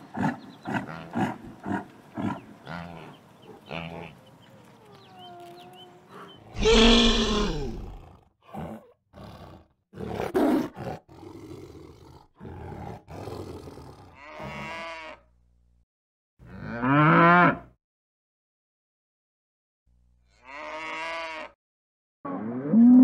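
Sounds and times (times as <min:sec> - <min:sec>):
tiger growling and snarling: 0:00.0 - 0:04.1, 0:06.1 - 0:14.2
cow mooing: 0:06.6 - 0:08.0, 0:16.5 - 0:17.7, 0:20.4 - 0:21.6.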